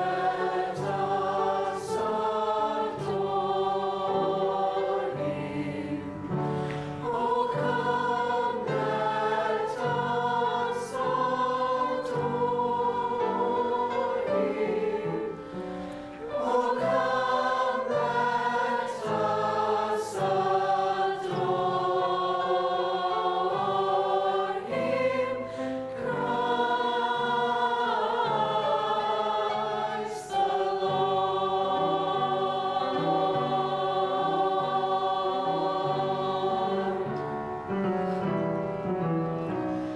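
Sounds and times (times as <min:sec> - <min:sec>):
choir singing a carol: 0:00.0 - 0:39.9.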